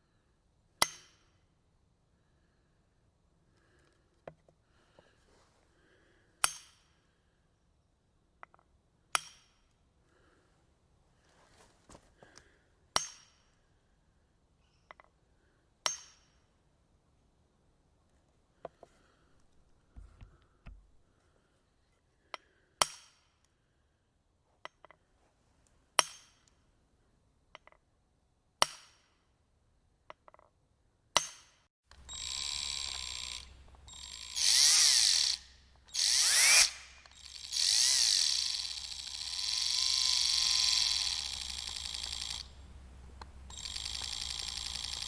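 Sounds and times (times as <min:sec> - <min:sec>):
electric drill running: 0:31.9 - 0:45.0.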